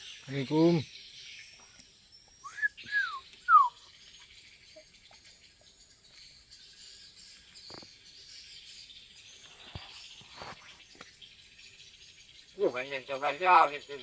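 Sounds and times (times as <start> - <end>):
bird whistling: 2.3 - 3.9.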